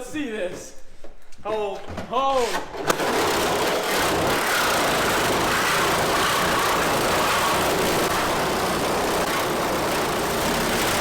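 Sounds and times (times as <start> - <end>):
power tool cutting sheet metal: 2.9 - 11.0.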